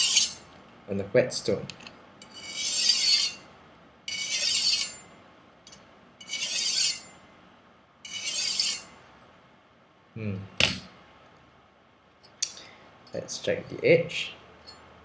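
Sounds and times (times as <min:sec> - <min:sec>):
knife sharpening on whetstone: 0:00.0 - 0:00.4, 0:02.2 - 0:03.4, 0:04.1 - 0:05.0, 0:06.2 - 0:07.1, 0:08.1 - 0:08.9.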